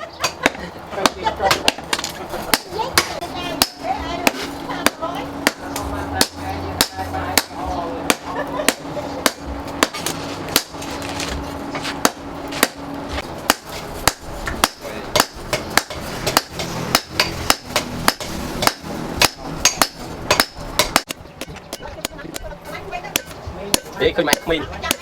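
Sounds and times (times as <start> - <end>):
hammer striking steel: 0.2 - 10.9, 13.4 - 25.0.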